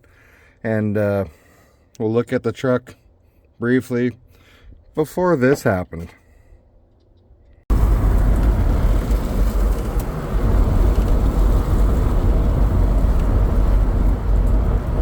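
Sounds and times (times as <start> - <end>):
loud vehicle rumble: 7.7 - 15.0
rushing noise: 7.7 - 15.0.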